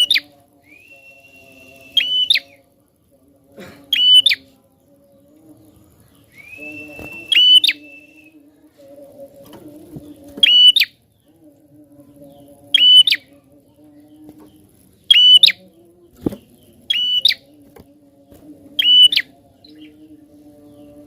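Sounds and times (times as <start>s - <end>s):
faint low hum: 0.0s - 21.0s
bird calling sharp notes: 6.4s - 8.2s, 15.1s - 15.6s, 16.9s - 17.4s.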